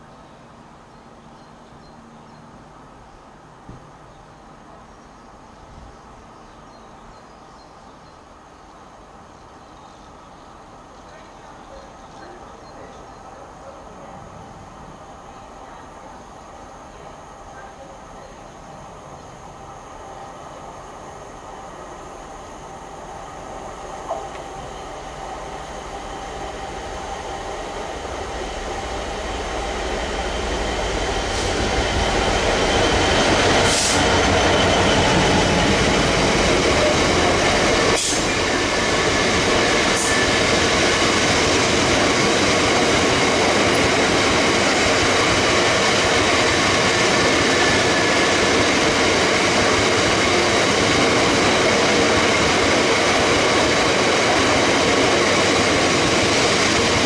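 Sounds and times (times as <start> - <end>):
train wheels rumbling on rails: 21.3 - 57.0.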